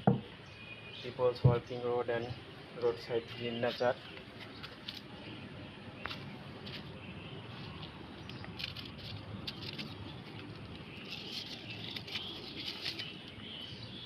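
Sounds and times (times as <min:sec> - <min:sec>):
outdoor background hiss: 0:00.0 - 0:14.0
plastic litter rustling and crackling: 0:07.6 - 0:13.7.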